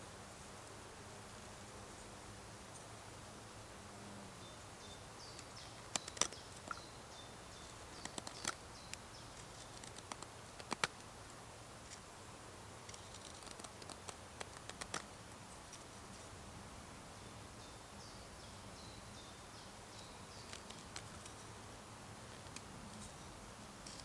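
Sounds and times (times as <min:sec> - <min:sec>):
sharp clicks and snaps: 0:05.3 - 0:06.8, 0:07.9 - 0:11.1, 0:12.9 - 0:15.1
small quick clicks: 0:05.3 - 0:06.8, 0:08.0 - 0:11.1, 0:12.9 - 0:15.1.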